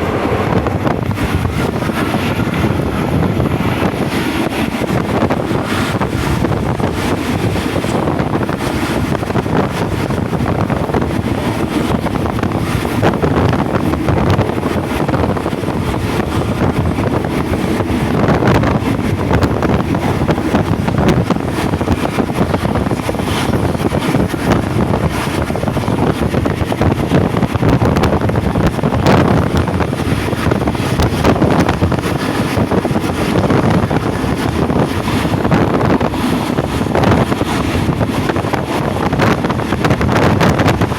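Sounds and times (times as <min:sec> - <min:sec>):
rattling clacks: 0:00.0 - 0:40.9
train wheels rumbling: 0:00.0 - 0:40.9
wind buffeting microphone: 0:00.0 - 0:40.9.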